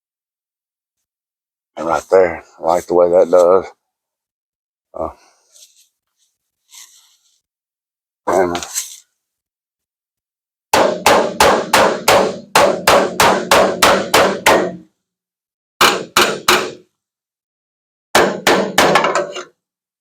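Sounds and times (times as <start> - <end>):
hammer striking sheet metal: 10.7 - 14.9, 15.8 - 16.9, 18.2 - 19.5.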